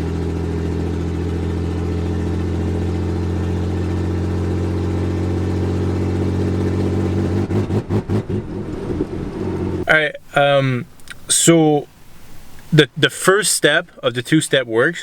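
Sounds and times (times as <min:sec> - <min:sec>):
truck engine on rev limiter: 0:00.0 - 0:11.8.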